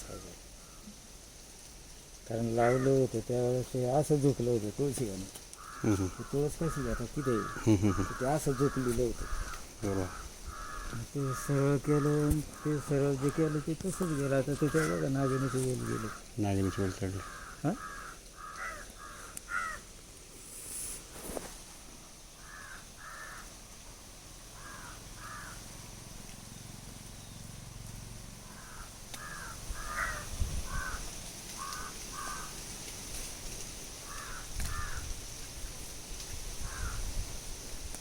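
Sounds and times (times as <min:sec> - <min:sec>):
crows cawing: 0:00.0 - 0:01.0, 0:02.4 - 0:03.2, 0:05.5 - 0:19.9, 0:22.4 - 0:23.9, 0:24.5 - 0:26.0, 0:28.4 - 0:32.8, 0:34.0 - 0:35.2, 0:36.6 - 0:37.1.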